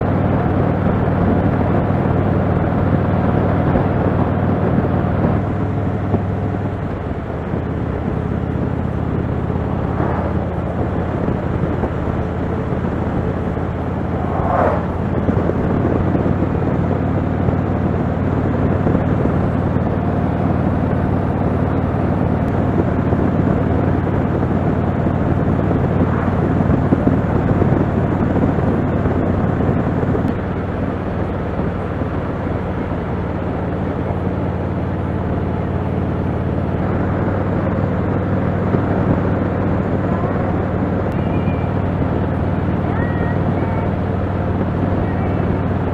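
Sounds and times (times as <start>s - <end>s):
rush of air: 8.2s - 16.2s, 25.3s - 28.1s.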